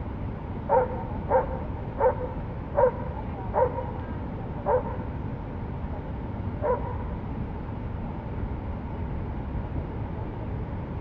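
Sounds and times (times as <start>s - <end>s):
dog barking: 0.7s - 4.0s, 4.6s - 5.0s, 6.6s - 7.0s.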